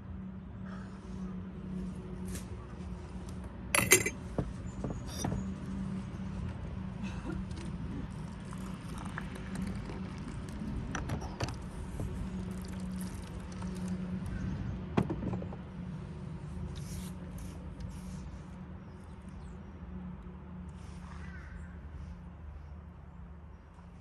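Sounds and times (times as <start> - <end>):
cups clinking: 3.8 - 4.2.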